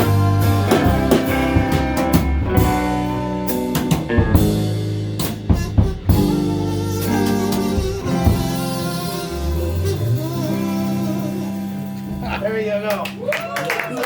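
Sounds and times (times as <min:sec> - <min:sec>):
sharp drum hits: 0:00.0 - 0:06.4
live band playing instrumental: 0:00.0 - 0:13.3.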